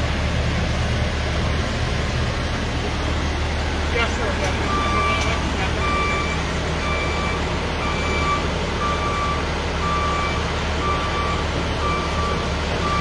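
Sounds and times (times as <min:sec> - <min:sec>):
heavy engine idling: 0:00.0 - 0:13.0
reversing alarm beeping: 0:04.6 - 0:13.0.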